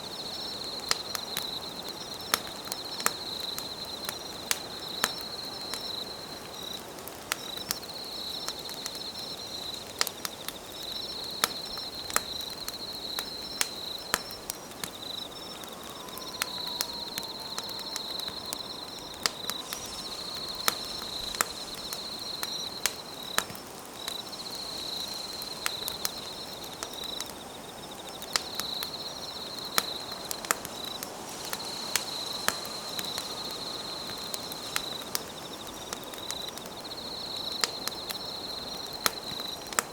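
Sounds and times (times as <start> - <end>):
campfire crackling and popping: 0.0 - 39.9
high insect trilling: 15.1 - 37.0.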